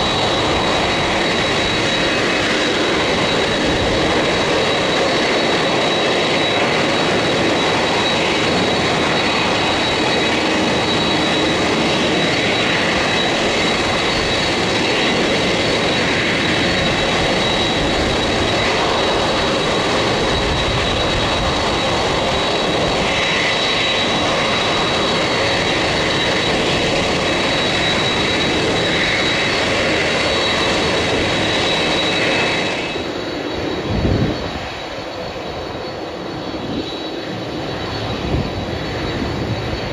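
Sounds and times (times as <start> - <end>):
jet engines running: 0.0 - 39.9
turbine whine: 0.0 - 39.9.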